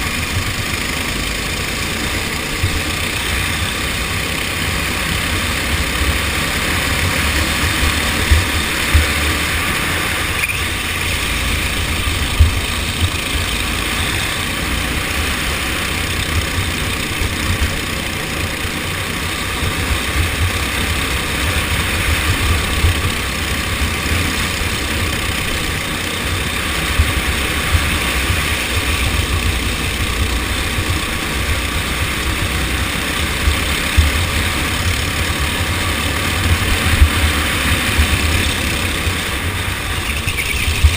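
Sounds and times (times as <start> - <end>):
kart engine running: 0.0 - 40.9.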